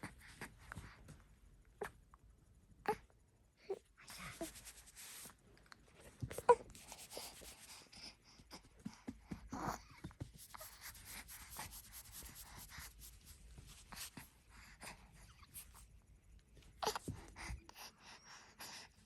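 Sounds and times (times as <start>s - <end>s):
rustling and scratching: 4.2s - 5.4s, 6.0s - 7.9s, 8.5s - 14.3s.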